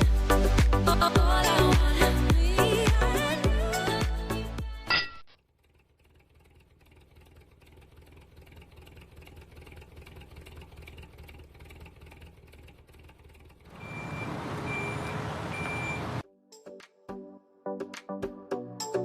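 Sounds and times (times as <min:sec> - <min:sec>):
short high beeps: 0:13.8 - 0:16.1.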